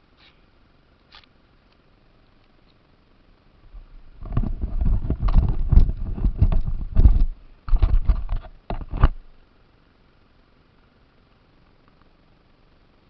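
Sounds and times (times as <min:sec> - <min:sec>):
knocks and rattling: 0:04.2 - 0:09.2.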